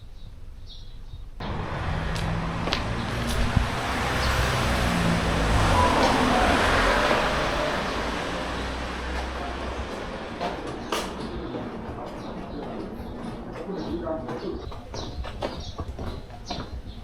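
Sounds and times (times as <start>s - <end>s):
vehicle passing: 1.4s - 14.6s.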